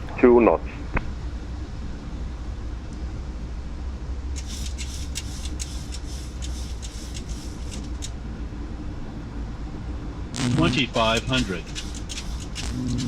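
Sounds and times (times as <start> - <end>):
low rumble of airflow and engines: 0.0 - 13.0
short high crackles: 10.3 - 11.0.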